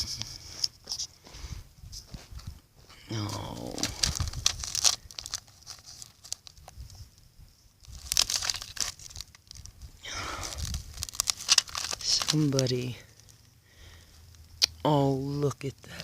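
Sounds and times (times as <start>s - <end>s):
dry debris crunching: 3.0s - 6.9s, 7.8s - 16.0s.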